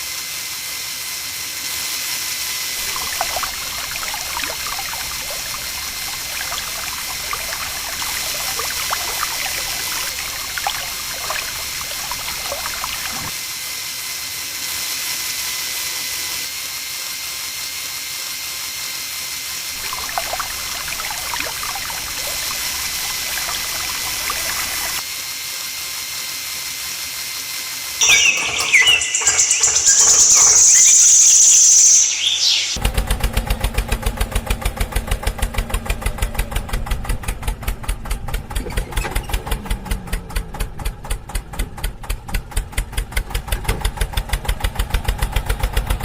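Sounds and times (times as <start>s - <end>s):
water trickling and splashing: 2.8s - 13.4s, 19.8s - 25.0s, 28.0s - 32.8s
high-pitched whine with clicking: 28.0s - 32.8s.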